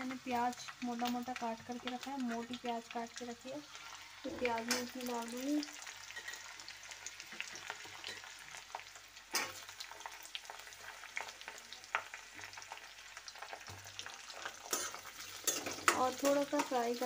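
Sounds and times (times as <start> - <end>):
onions sizzling in hot oil: 0.0 - 17.0
metal spoon scraping a pan: 3.7 - 5.0, 6.0 - 6.6, 7.3 - 8.4, 9.3 - 9.7, 13.7 - 17.0.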